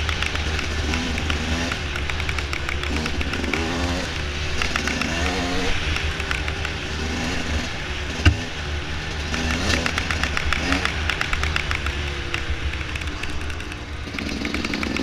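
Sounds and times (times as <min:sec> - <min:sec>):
small rattling clicks: 0:00.0 - 0:03.7, 0:09.3 - 0:15.0
dirt bike engine revving: 0:00.0 - 0:15.0.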